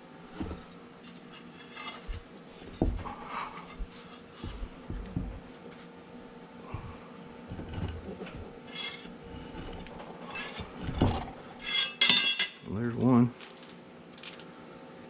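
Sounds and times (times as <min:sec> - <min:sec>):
dull knocks of parts: 0:01.8 - 0:05.5.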